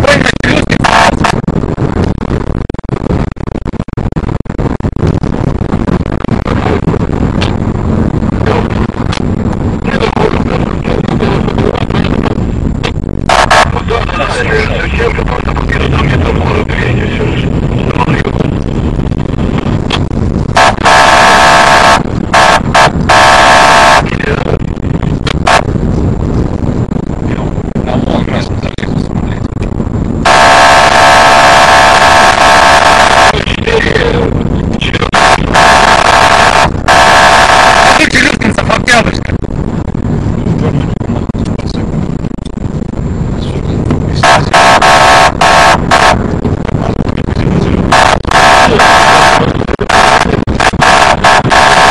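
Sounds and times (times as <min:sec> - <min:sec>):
engine and road rumble: 0:00.0 - 0:51.9
police car horn blasts: 0:20.6 - 0:24.0.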